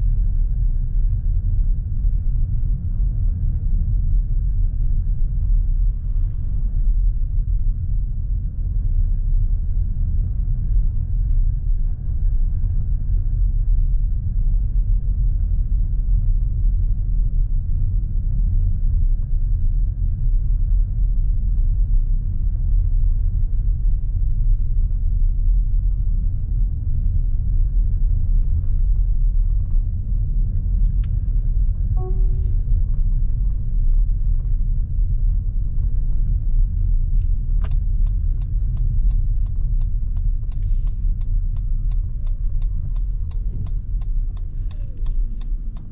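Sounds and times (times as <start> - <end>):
road and tyre rumble in cabin: 0.0 - 45.9
turn signal ticking: 35.8 - 45.9.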